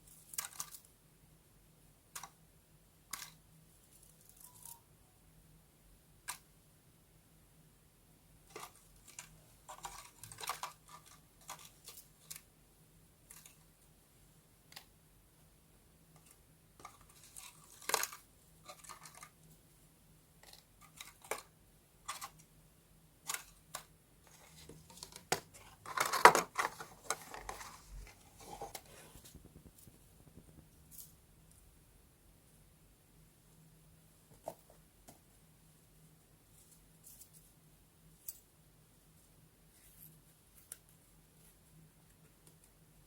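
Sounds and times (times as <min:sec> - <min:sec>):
paper and craft tools handled: 0:23.2 - 0:30.4.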